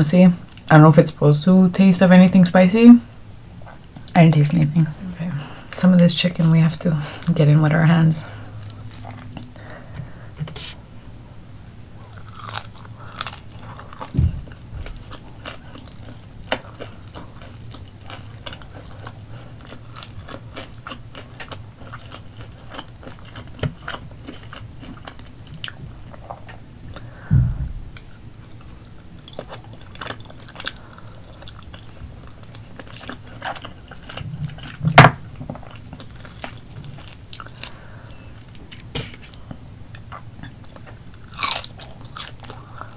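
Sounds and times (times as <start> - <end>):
close chewing and biting: 8.4 - 9.9, 12.1 - 27.1, 28.0 - 37.8, 38.7 - 42.9
loud knocks: 14.1 - 15.0, 27.3 - 27.9.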